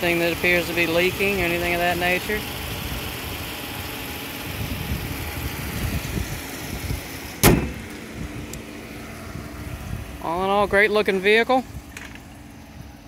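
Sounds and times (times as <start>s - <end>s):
car engine idling: 0.0s - 13.0s
car hood slamming shut: 7.4s - 8.0s.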